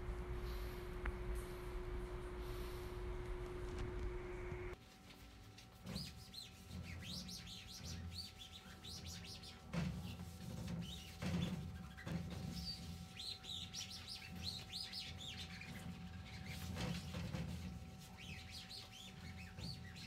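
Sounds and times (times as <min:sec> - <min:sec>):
faint steady hum: 0:00.0 - 0:10.6
small birds chirping: 0:05.9 - 0:20.0.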